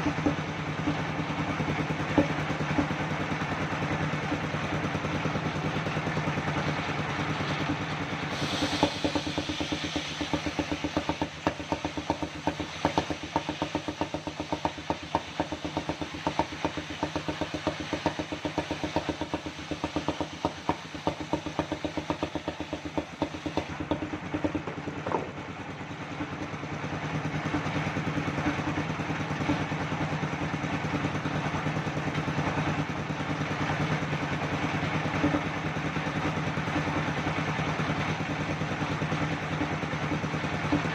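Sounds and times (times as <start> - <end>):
circular sawmill running: 0.0 - 40.9.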